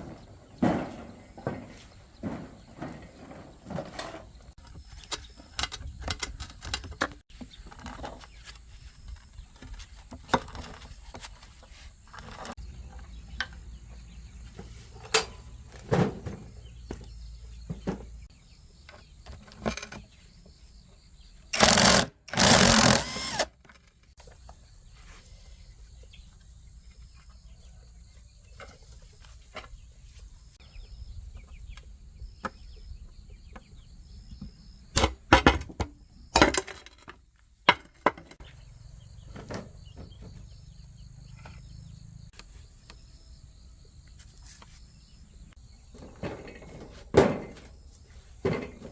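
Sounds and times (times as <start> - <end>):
insects chirping: 20.7 - 23.5.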